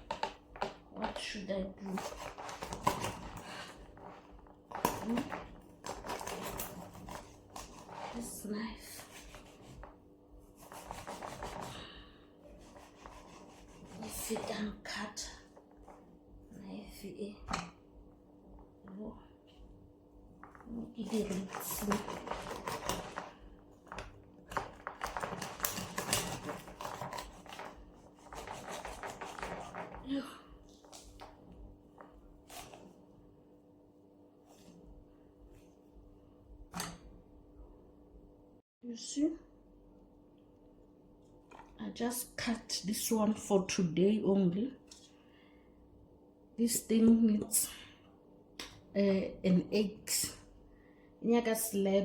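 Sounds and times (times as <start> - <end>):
faint steady hum: 0.0 - 52.0
knife scraping and clicking on board: 4.7 - 8.2, 21.1 - 23.2, 24.5 - 30.0.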